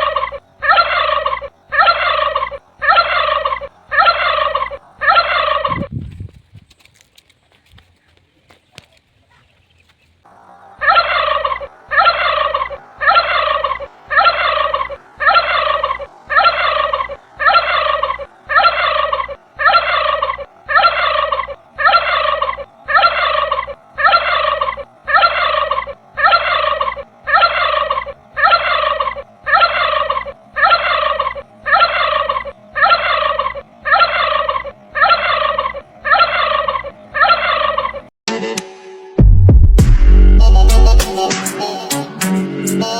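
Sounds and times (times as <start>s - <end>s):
turkey gobbling: 0.0s - 5.9s, 10.3s - 38.1s.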